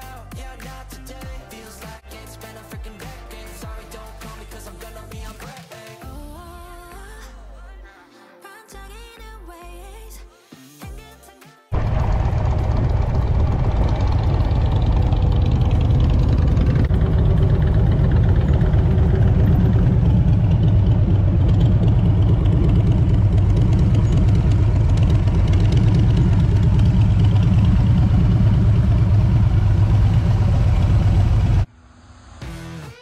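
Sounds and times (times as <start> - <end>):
motorcycle engine idling: 11.8 - 31.7
other motorcycles running: 11.8 - 31.7.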